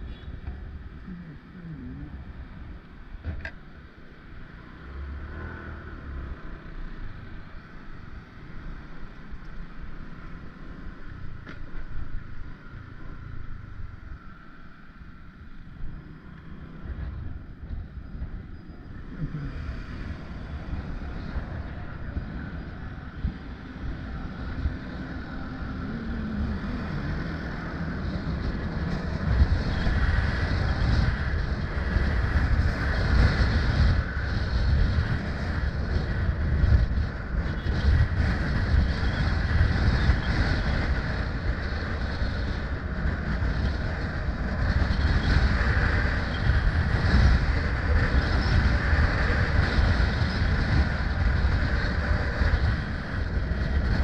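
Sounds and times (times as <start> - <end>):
motorbike road and engine noise: 0.0 - 54.0
wind buffeting microphone: 16.7 - 54.0.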